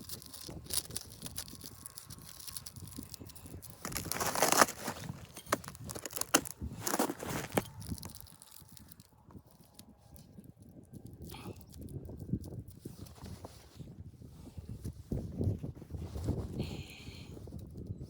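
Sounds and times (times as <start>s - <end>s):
crunching and rustling: 0.0s - 9.8s.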